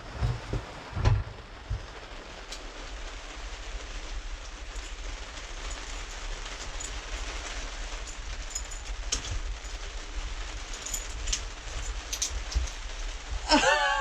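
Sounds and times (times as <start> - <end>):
low rumble: 0.0 - 2.4
rain pattering: 0.0 - 14.0.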